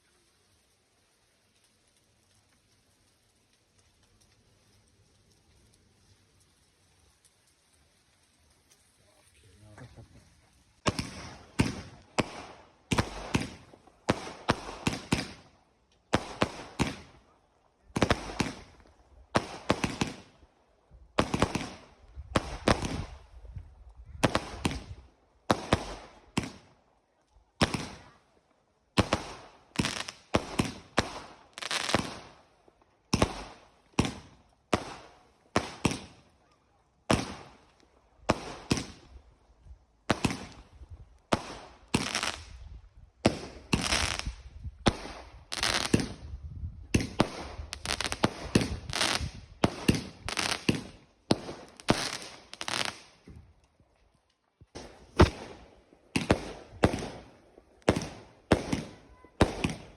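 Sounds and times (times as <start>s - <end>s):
fireworks banging: 9.7s - 15.5s, 16.1s - 17.2s, 17.9s - 20.3s, 21.1s - 26.7s, 27.6s - 28.1s, 28.9s - 32.4s, 33.1s - 36.2s, 37.0s - 39.2s, 40.0s - 53.5s, 54.6s - 59.9s.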